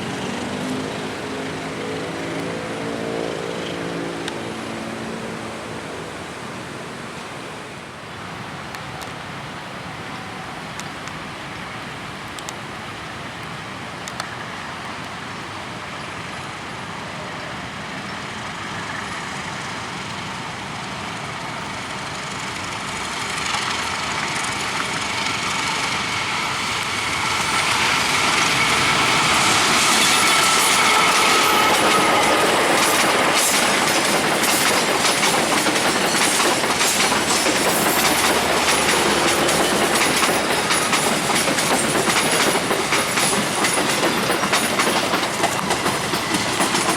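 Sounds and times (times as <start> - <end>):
train high whine: 0.0 - 8.5, 15.7 - 46.9
train wheels clattering over rails: 21.7 - 46.9.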